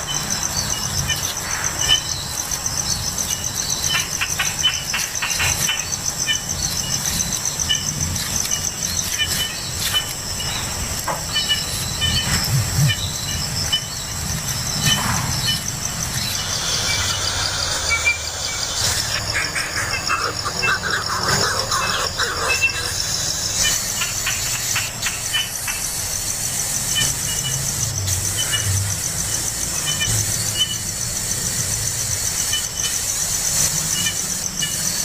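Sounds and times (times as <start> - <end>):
pulsing insect trill: 0.0 - 35.0.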